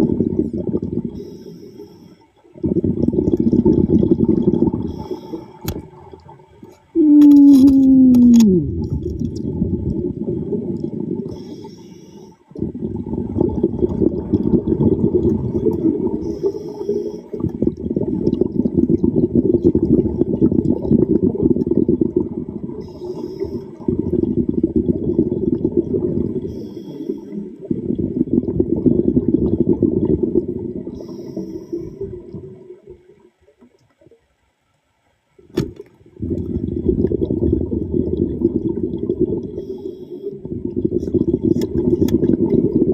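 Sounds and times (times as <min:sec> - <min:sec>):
underwater breath bubbling: 0:00.0 - 0:33.2, 0:36.2 - 0:42.9
faint hiss of diver inhaling: 0:01.1 - 0:02.4, 0:04.8 - 0:05.6, 0:11.3 - 0:12.5, 0:16.2 - 0:17.4, 0:22.8 - 0:23.8, 0:26.4 - 0:27.6, 0:30.9 - 0:32.1, 0:39.5 - 0:40.5.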